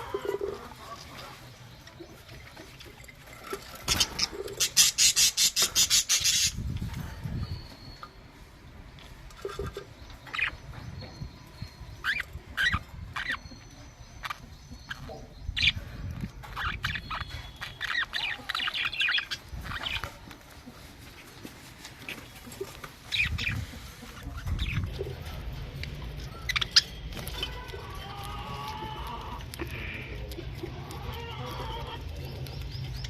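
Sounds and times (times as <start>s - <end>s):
budgerigars chirping: 3.9s - 6.6s, 9.4s - 15.9s, 16.5s - 20.1s, 23.1s - 25.0s, 26.2s - 30.0s.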